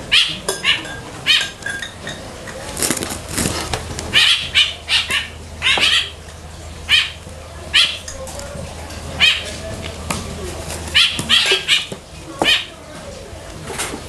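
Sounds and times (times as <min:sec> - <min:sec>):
bird chirping: 0:00.0 - 0:02.2, 0:04.1 - 0:12.8
rustling: 0:02.2 - 0:06.4.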